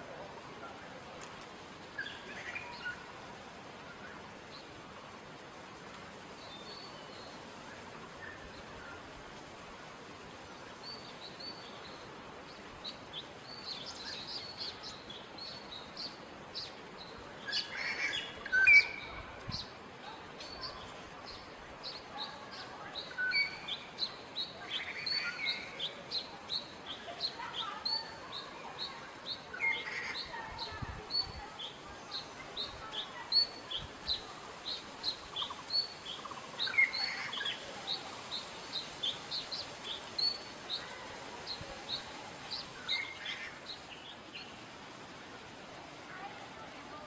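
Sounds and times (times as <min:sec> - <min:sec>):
songbirds chirping: 0:00.0 - 0:47.0
lower bird calls: 0:20.4 - 0:44.6.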